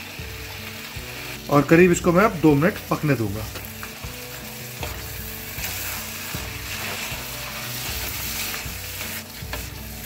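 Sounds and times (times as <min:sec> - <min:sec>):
vegetables sizzling in oil: 0:00.0 - 0:10.0
spatula stirring and scraping: 0:03.5 - 0:10.0.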